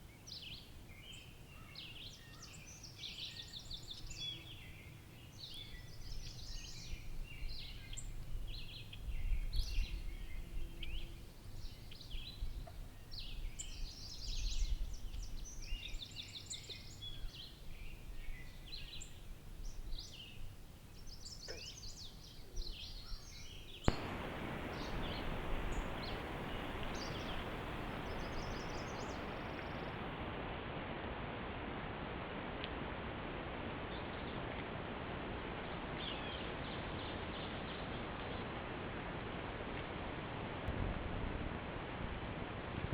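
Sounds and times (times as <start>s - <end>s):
small birds chirping: 0.0s - 30.2s
steady hiss: 23.6s - 42.8s
low outdoor rumble: 23.8s - 42.9s.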